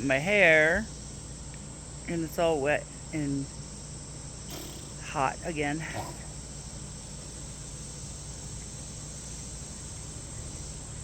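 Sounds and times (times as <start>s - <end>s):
insects shrilling: 3.6s - 9.4s.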